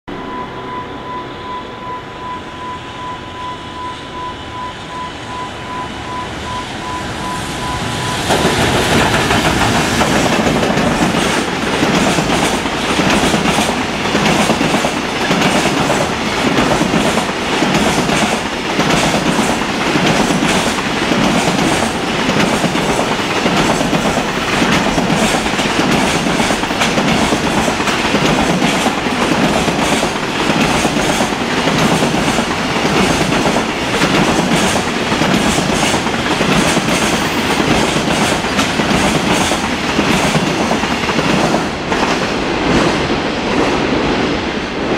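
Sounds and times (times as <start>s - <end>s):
high electronic tone beeping: 0.1s - 8.5s
train rumbling past: 0.1s - 44.9s
wheels clacking over rail joints: 8.3s - 43.9s.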